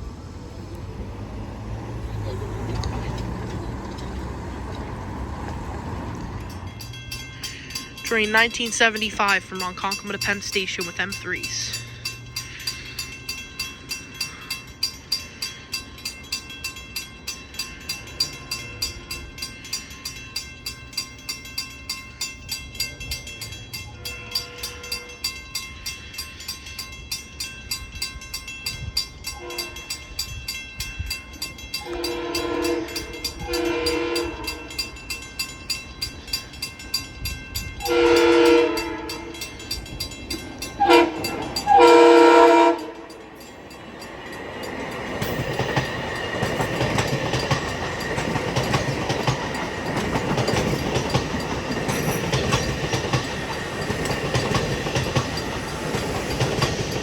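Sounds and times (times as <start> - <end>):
bell clanging: 6.1 - 57.0
train horn blasts: 24.0 - 25.2, 29.3 - 30.0, 31.8 - 34.9, 37.8 - 39.5, 40.8 - 43.1.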